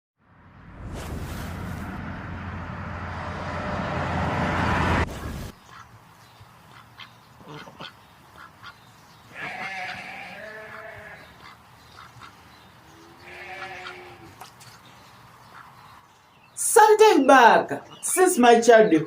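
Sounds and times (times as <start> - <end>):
rush of noise: 0.3 - 5.6
poultry quacking: 5.1 - 6.0, 6.6 - 14.6, 15.5 - 15.8.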